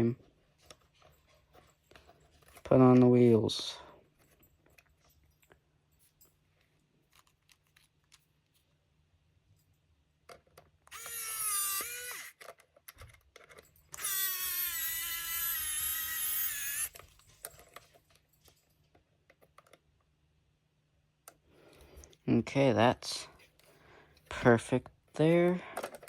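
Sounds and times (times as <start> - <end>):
electric screwdriver whirring: 10.9 - 12.5, 14.0 - 17.0.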